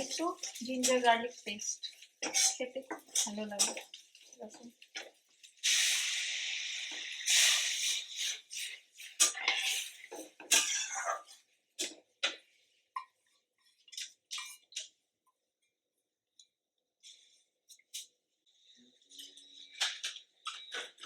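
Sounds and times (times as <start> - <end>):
metal utensils clattering on pots: 0.0 - 5.2, 9.1 - 12.4.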